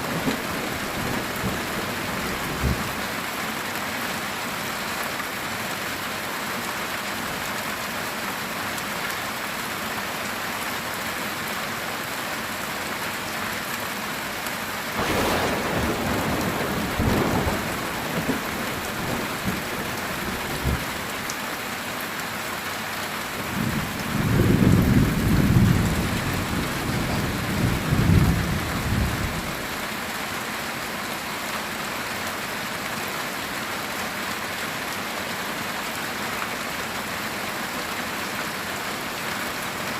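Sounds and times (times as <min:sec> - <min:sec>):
heavy rain on a tin roof: 0:00.0 - 0:39.9
thunder crack and rumble: 0:00.1 - 0:03.0, 0:15.0 - 0:20.9, 0:23.6 - 0:29.6.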